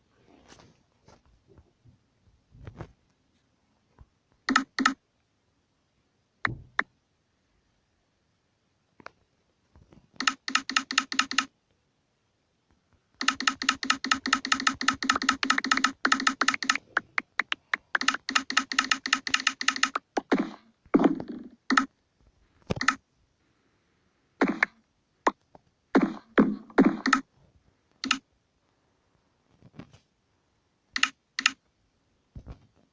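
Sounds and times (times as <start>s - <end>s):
rapid even clicking: 4.5s - 5.0s, 10.2s - 11.5s, 13.2s - 21.0s, 21.6s - 21.9s, 22.7s - 23.0s, 26.0s - 27.3s, 28.0s - 28.2s
knocks and short thuds: 6.4s - 6.8s.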